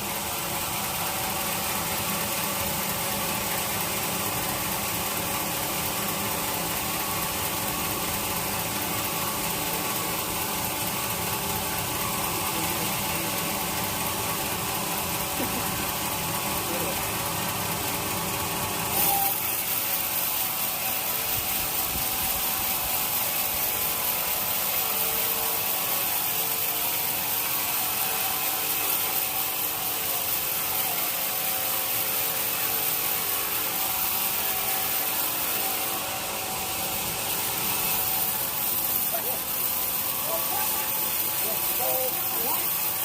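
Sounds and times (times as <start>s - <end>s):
sawmill machine drone: 0.0s - 43.0s
saw blade hissing through wood: 18.9s - 43.0s.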